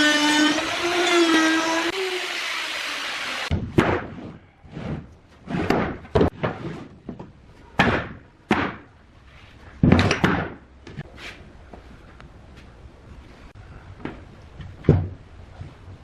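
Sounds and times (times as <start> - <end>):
wood knocks and thuds: 5.5 - 8.9, 9.8 - 11.0, 14.0 - 15.9.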